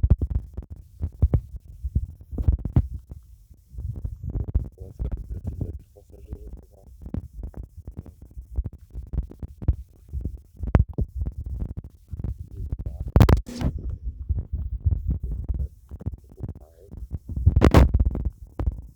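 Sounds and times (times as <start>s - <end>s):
low thumps: 12.3s - 18.8s.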